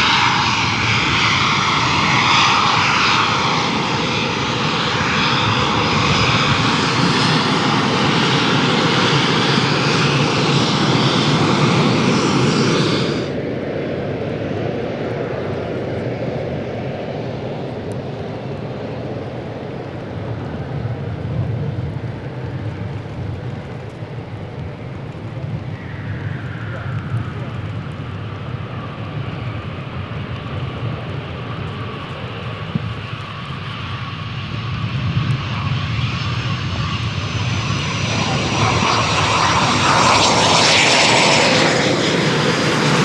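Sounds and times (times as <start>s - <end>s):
high hissing jet whine: 0.0s - 13.6s, 31.5s - 43.0s
low jet rumble: 0.0s - 43.0s.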